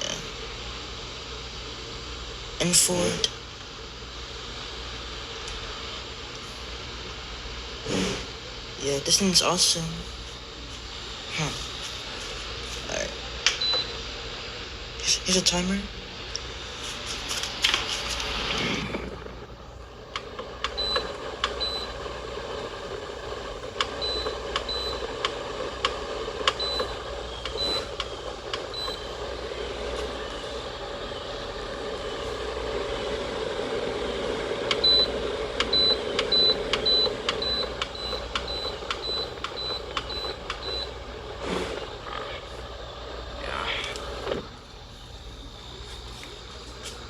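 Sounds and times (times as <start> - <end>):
cooler fan running: 0.0 - 47.0
control panel beeps: 13.6 - 13.9, 20.7 - 22.0, 23.9 - 25.3, 26.5 - 29.2, 34.7 - 41.0.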